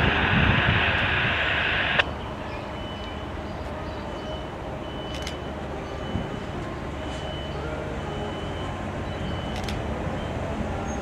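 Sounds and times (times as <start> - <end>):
loud hiss: 0.0 - 2.0
distant diesel locomotive rumble: 0.0 - 11.0.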